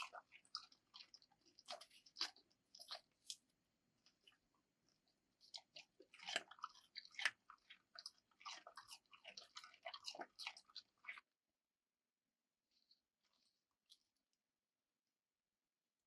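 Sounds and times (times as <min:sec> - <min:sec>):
crunchy chewing: 0:00.0 - 0:11.3.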